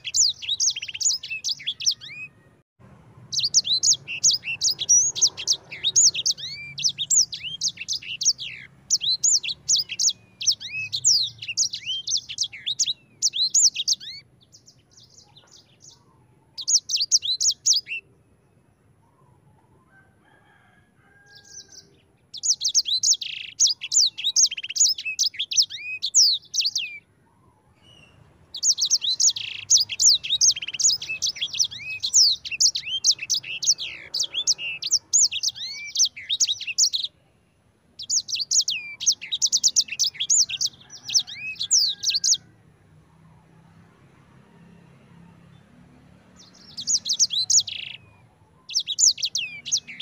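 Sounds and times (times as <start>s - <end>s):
canary singing rapid chirps: 0.0s - 2.5s, 3.2s - 18.1s, 21.2s - 27.1s, 27.8s - 37.2s, 38.0s - 42.4s, 45.6s - 50.0s.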